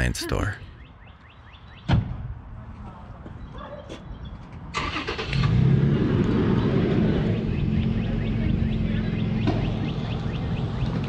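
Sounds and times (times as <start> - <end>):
engine starting and running: 4.8 - 7.3.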